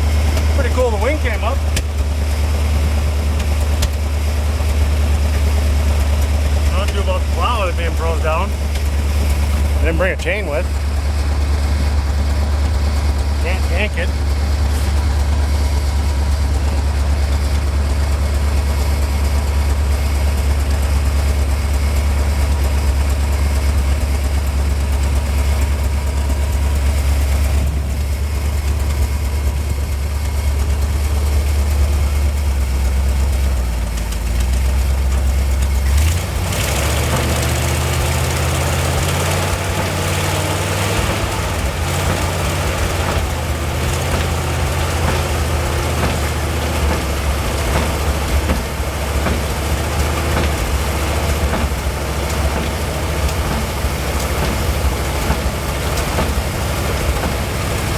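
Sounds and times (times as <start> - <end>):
truck engine running: 0.0 - 57.9.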